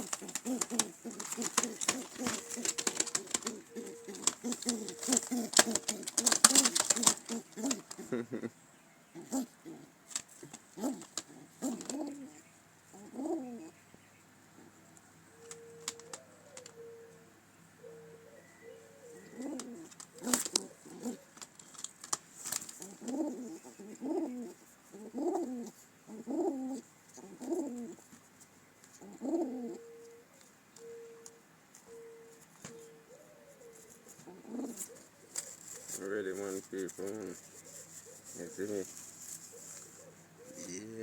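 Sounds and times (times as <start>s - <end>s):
pigeons cooing: 0.0s - 21.8s, 22.5s - 28.2s, 28.9s - 41.0s.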